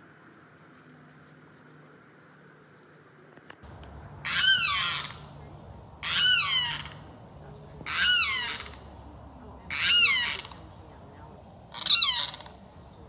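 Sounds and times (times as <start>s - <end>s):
bird calling harshly: 4.1s - 10.7s, 11.7s - 12.7s.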